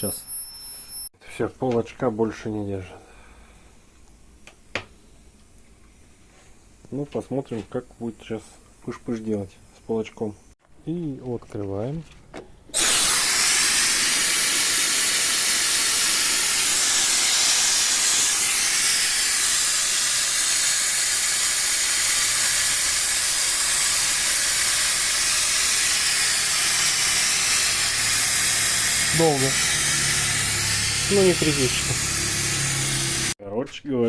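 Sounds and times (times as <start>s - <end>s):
steam hissing from metal can: 12.8s - 33.4s.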